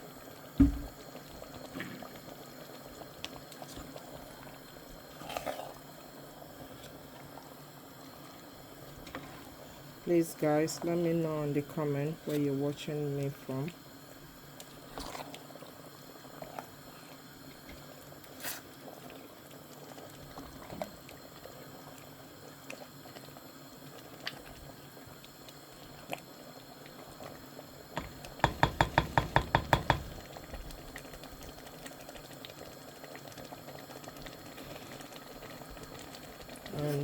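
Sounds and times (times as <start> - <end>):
soup bubbling in a pot: 0.0 - 37.0
rapid sharp knocks: 28.4 - 30.2.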